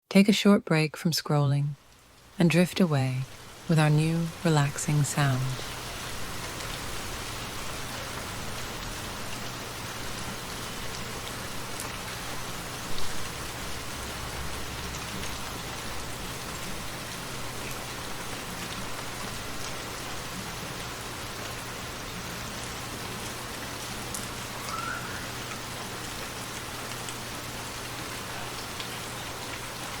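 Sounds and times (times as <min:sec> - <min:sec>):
raindrop ticks: 0:01.8 - 0:03.4, 0:10.4 - 0:30.0
steady rainfall: 0:01.8 - 0:30.0.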